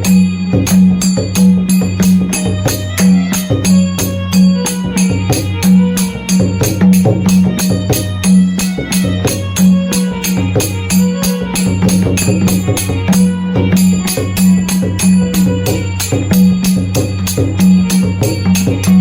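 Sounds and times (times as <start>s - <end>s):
sharp metallic strikes: 0.0s - 19.0s.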